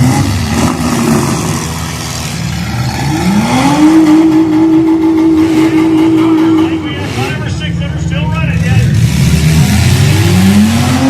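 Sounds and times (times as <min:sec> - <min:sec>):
car engines running: 0:00.0 - 0:11.0
engine revving high: 0:00.0 - 0:11.0.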